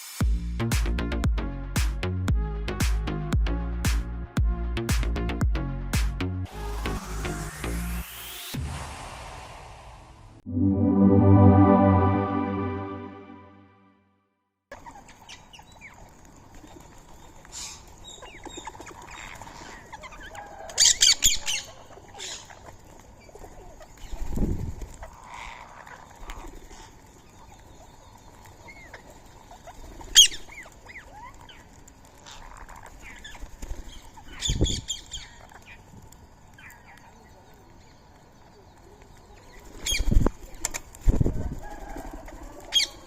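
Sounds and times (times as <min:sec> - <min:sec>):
wings flapping: 0:29.0 - 0:35.9, 0:39.5 - 0:43.0.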